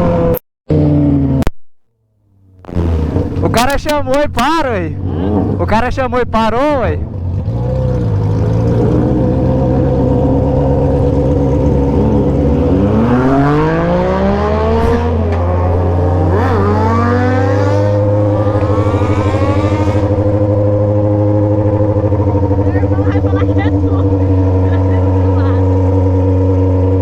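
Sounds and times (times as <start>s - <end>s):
motorcycle engines running: 2.5s - 27.0s
engine revving up: 2.6s - 3.8s, 4.9s - 5.7s, 7.1s - 27.0s.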